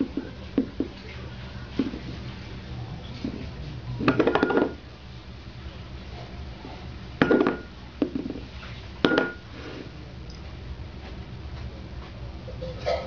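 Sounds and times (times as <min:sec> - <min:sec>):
hard object clattering: 0:04.0 - 0:04.8, 0:07.2 - 0:08.4, 0:09.0 - 0:09.4.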